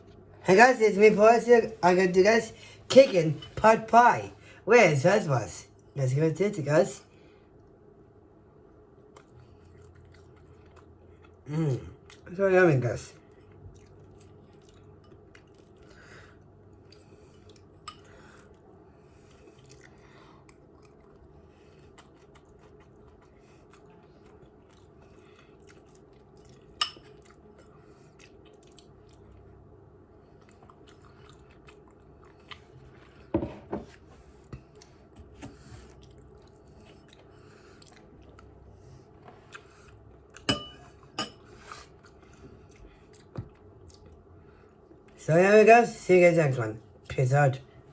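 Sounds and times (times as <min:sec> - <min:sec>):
low steady hum: 0:00.0 - 0:47.9
person chewing food: 0:08.7 - 0:12.3, 0:13.2 - 0:45.2
cutlery clinking against dish: 0:40.5 - 0:41.4.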